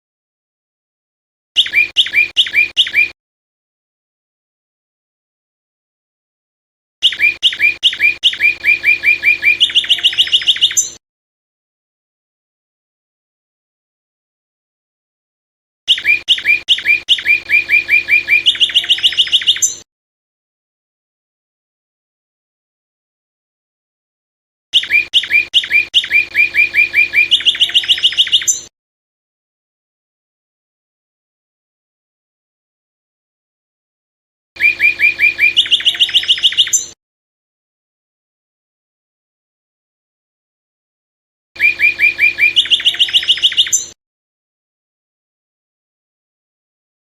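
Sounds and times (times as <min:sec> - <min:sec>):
songbird singing sharp notes: 0:01.6 - 0:03.2, 0:07.0 - 0:11.0, 0:15.9 - 0:19.8, 0:24.8 - 0:28.7, 0:34.6 - 0:37.0, 0:41.6 - 0:44.0.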